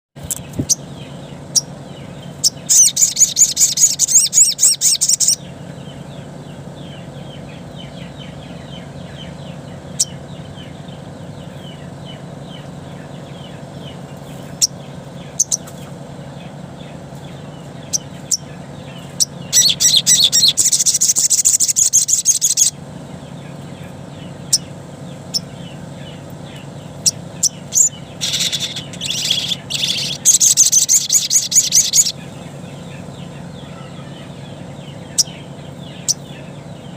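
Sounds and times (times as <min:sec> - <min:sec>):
bird high-pitched chattering trills: 0:00.2 - 0:36.9
steady low hum: 0:00.2 - 0:36.9
bird sharp chips: 0:26.5 - 0:32.2.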